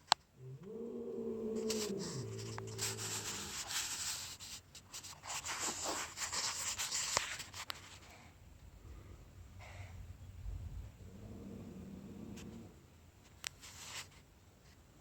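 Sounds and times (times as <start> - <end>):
cat yowling: 0.5 - 3.7
rough scratchy noise: 1.4 - 7.5.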